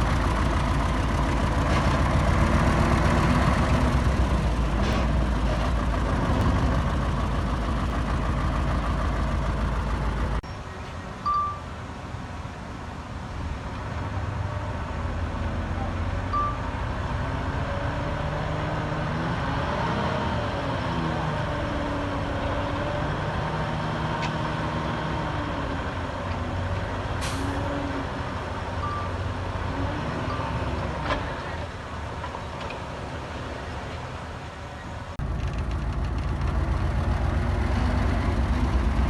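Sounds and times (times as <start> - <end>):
diesel machinery engine running: 0.0 - 10.4, 13.2 - 39.0
short single beeps: 11.2 - 11.7, 16.3 - 16.7, 28.8 - 29.2.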